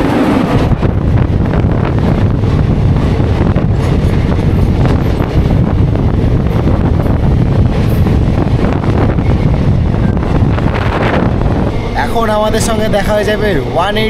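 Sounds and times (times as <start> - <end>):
train wheels rumbling on rails: 0.0 - 14.0
wind buffeting microphone: 0.0 - 14.0.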